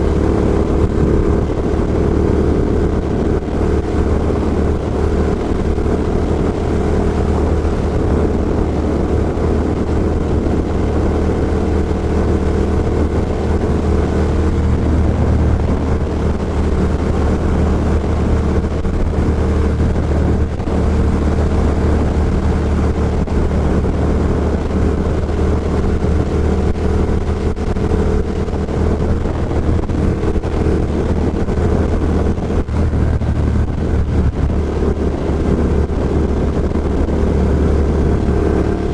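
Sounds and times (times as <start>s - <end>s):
motorcycle engine running: 0.0s - 38.9s
wind noise: 0.0s - 38.9s.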